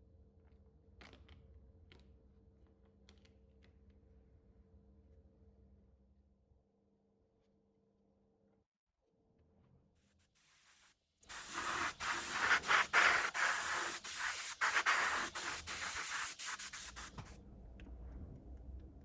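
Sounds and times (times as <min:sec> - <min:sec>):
abrasive hand sanding strokes: 0:11.3 - 0:17.2.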